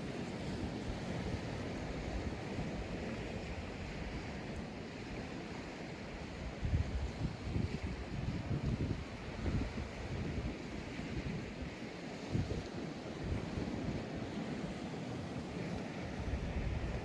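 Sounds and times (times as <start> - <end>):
sea surf on sandy beach: 0.0 - 17.0
wind buffeting microphone: 6.1 - 17.0.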